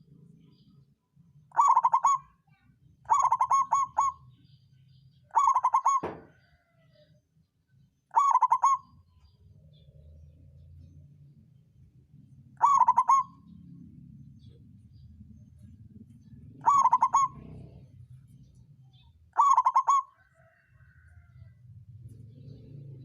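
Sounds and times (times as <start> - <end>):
dove cooing: 1.5 - 2.3, 3.1 - 4.4, 5.3 - 7.0, 8.1 - 9.1, 12.4 - 18.7, 19.3 - 23.0.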